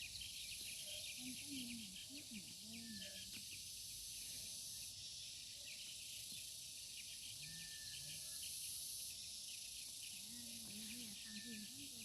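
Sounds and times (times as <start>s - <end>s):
insect chorus chirping: 0.0s - 12.0s.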